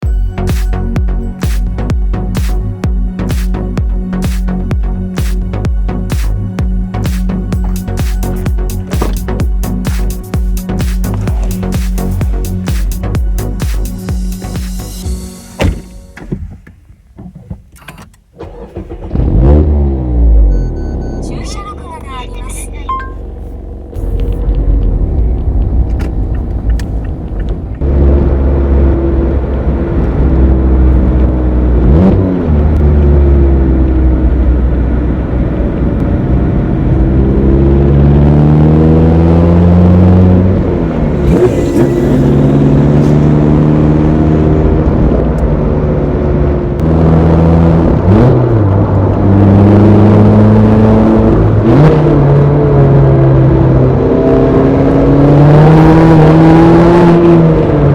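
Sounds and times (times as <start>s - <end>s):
car engine revving through gears: 18.4s - 57.9s.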